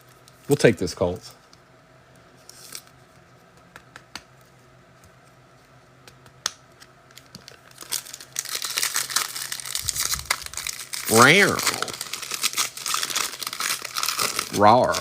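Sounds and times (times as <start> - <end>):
cards clicking and tapping: 3.5 - 4.4, 6.0 - 7.5
foil wrapper crinkling and tearing: 7.1 - 15.0.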